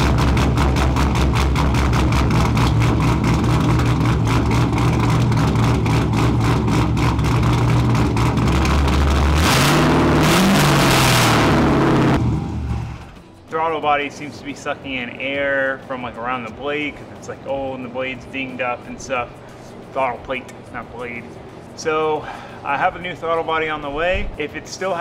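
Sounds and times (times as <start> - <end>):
car engine idling and revving: 0.0 - 13.4.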